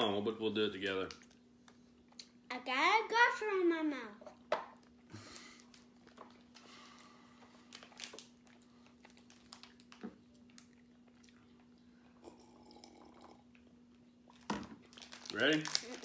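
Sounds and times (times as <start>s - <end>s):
low steady hum: 0.0s - 16.0s
chewing fruit snacks: 1.0s - 2.4s, 4.3s - 12.2s, 13.5s - 16.0s.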